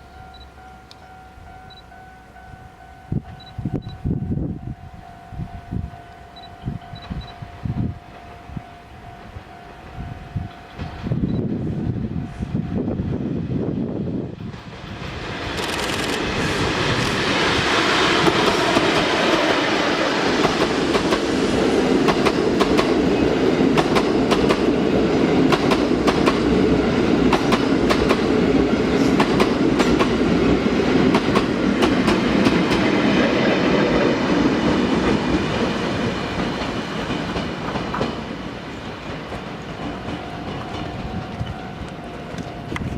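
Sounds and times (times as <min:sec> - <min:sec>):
train wheels clacking over rail joints: 0:15.5 - 0:33.3, 0:34.2 - 0:41.6.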